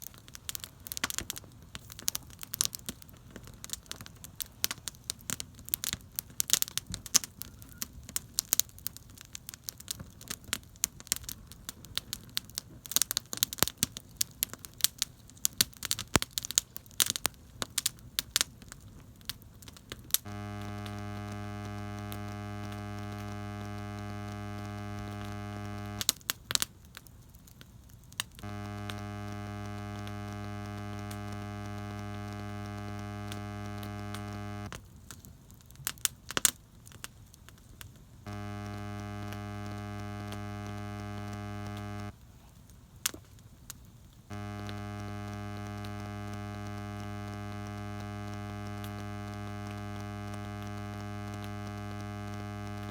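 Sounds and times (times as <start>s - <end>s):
campfire crackling and popping: 0.0s - 42.1s
loud buzzing hum: 20.3s - 26.1s, 28.4s - 34.7s, 38.3s - 42.1s, 44.3s - 52.9s.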